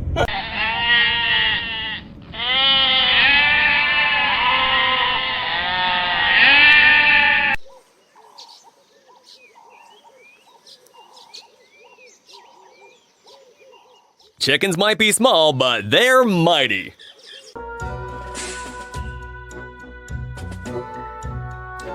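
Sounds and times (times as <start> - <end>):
animals bleating: 0.2 - 7.6.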